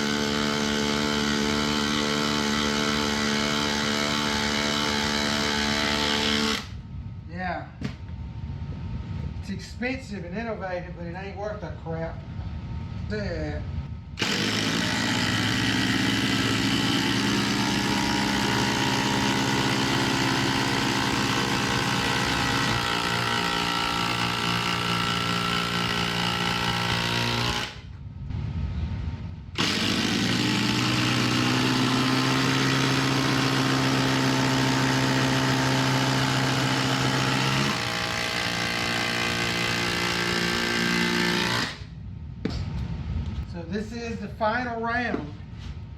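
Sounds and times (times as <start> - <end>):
impact drivers whining: 14.2 - 27.8, 29.6 - 41.8.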